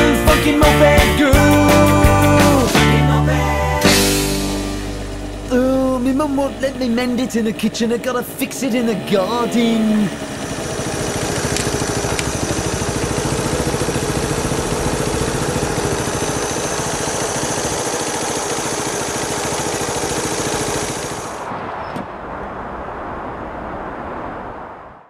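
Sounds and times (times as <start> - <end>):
small motorcycle engine puttering: 4.6 - 22.1
click: 11.5 - 12.3.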